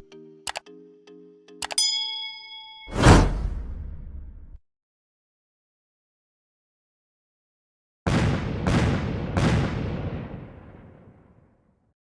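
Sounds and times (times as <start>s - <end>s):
deep boom: 3.0s - 4.6s.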